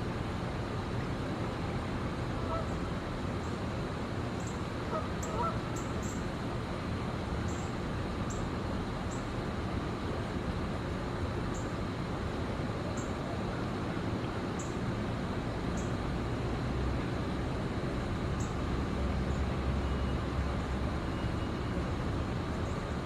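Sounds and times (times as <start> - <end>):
traffic hum: 0.0 - 23.0
faint honk-like bird calls: 4.9 - 6.2.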